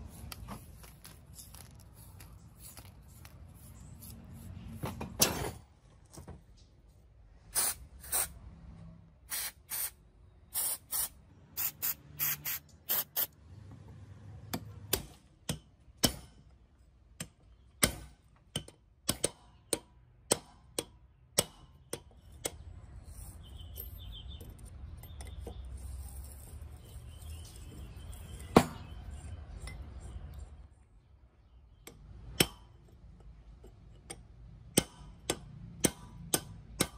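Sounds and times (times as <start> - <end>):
short hissing bursts: 7.5 - 8.3, 9.3 - 13.3
chisel tapping on metal: 14.5 - 16.5, 17.2 - 22.7, 31.8 - 36.9.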